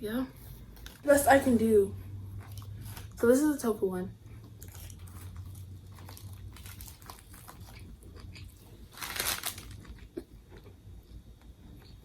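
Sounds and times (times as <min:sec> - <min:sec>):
steady low hum: 0:00.0 - 0:12.0
sandwich wrapper crinkling: 0:04.6 - 0:10.1.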